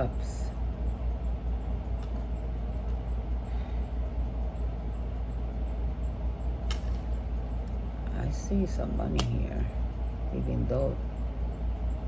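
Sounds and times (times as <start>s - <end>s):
low rumble with hiss: 0.0s - 12.0s
sharp click: 9.1s - 9.4s.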